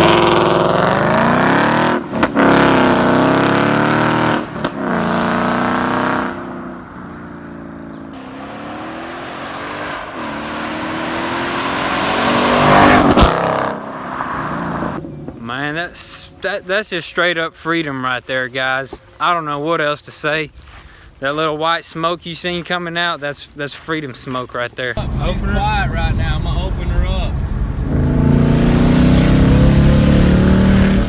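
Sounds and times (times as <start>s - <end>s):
car engine accelerating: 0.0s - 15.3s, 25.0s - 31.0s.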